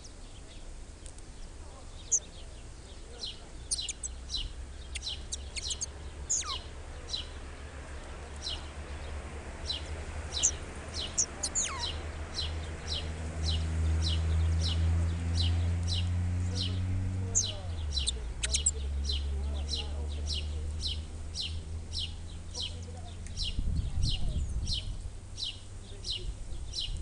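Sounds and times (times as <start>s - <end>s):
high bird chirps: 3.3s - 7.4s, 9.7s - 13.1s, 17.3s - 22.8s.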